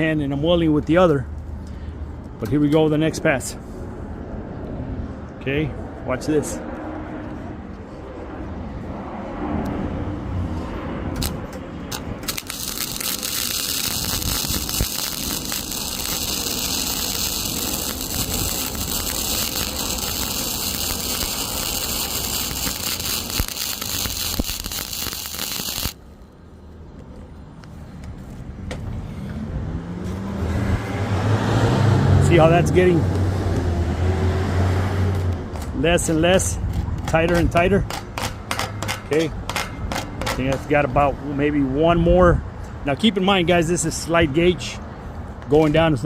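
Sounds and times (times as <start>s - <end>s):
welding arc crackling: 11.2s - 26.0s.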